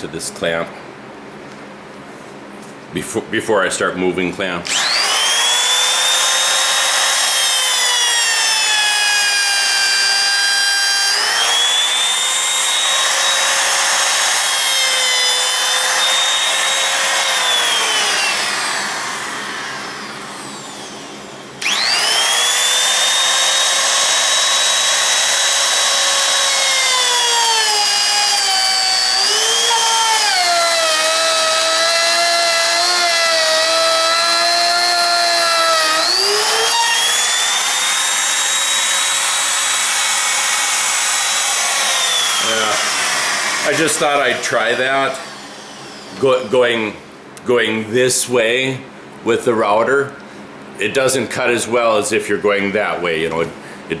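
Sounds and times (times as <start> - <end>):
electric router whining: 4.6 - 47.0.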